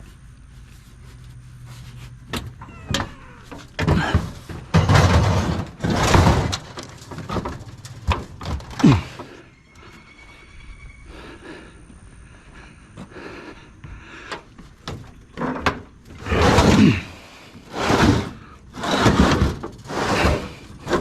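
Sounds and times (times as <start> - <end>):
heavy scraping thuds and clanks: 1.8 - 9.4, 14.8 - 21.0.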